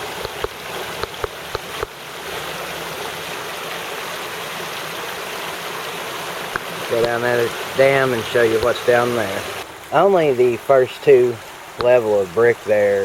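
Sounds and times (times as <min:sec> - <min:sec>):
creek water rushing: 0:00.0 - 0:13.0
sharp clicks: 0:00.2 - 0:01.9.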